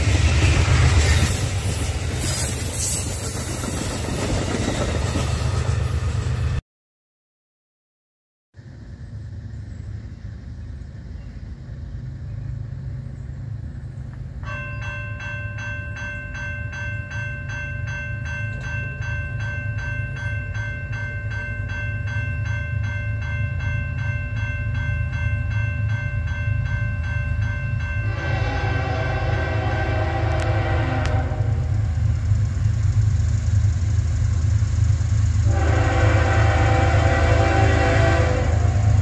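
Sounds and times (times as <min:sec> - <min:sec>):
diesel locomotive rumble: 0:00.0 - 0:06.6, 0:08.6 - 0:39.0
bell ringing: 0:14.4 - 0:28.4
locomotive horn: 0:28.1 - 0:32.0, 0:35.4 - 0:39.0.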